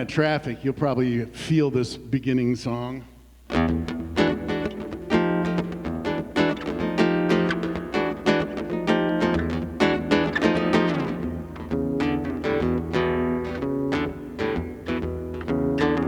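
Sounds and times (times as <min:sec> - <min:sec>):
acoustic guitar strumming: 0:03.5 - 0:16.0.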